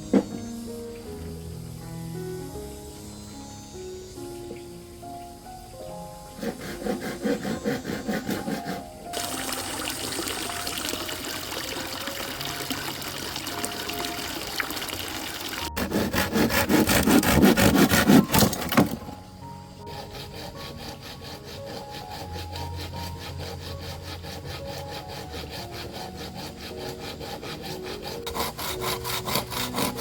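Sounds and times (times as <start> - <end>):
soft background music: 0.0 - 30.0
hand saw cutting wood: 6.4 - 19.2, 19.8 - 30.0.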